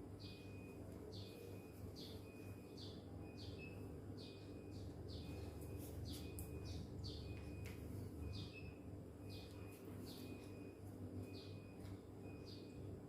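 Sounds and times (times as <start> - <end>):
steady low hum: 0.0 - 13.0
small bird chirping: 0.2 - 7.6, 8.2 - 10.7.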